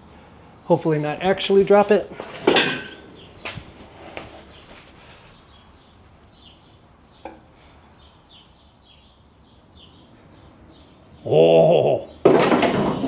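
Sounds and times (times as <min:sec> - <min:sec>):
bird chirping: 0:02.9 - 0:12.3.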